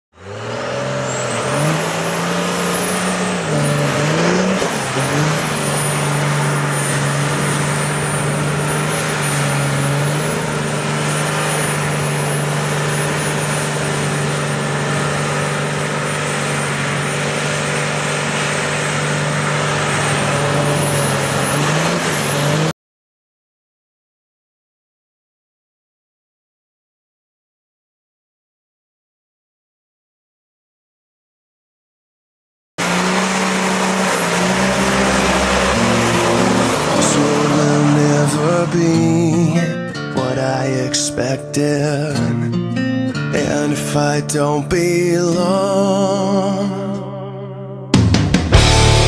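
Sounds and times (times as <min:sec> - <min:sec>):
spinning tyres rushing: 0:00.1 - 0:22.7, 0:32.8 - 0:39.7, 0:48.5 - 0:49.0
diesel truck engine revving: 0:00.1 - 0:22.8, 0:32.8 - 0:41.3, 0:48.3 - 0:49.0.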